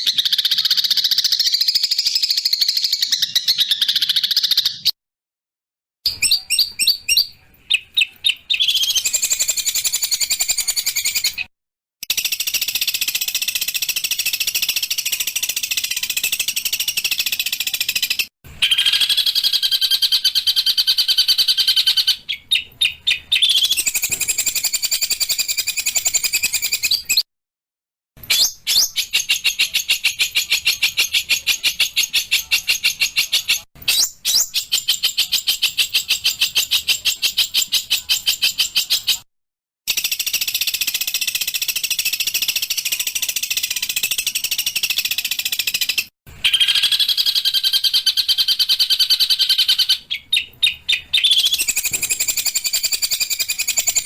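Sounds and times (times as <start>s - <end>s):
songbirds singing rapid high notes: 6.1s - 27.3s, 39.9s - 54.0s.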